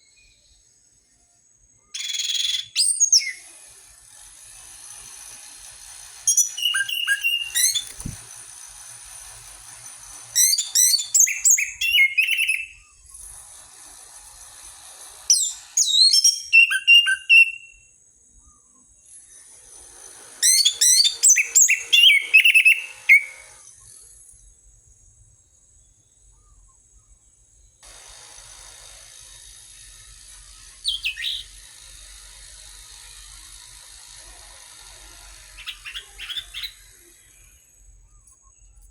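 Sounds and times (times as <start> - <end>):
bird call: 1.9 - 3.5, 6.3 - 8.2, 10.4 - 13.1, 15.3 - 17.8, 20.4 - 23.6, 30.8 - 31.6, 35.6 - 37.0
bird singing whistles: 1.9 - 3.5, 6.3 - 8.2, 10.4 - 13.1, 15.3 - 17.9, 20.4 - 23.6, 30.8 - 31.5, 35.6 - 36.8.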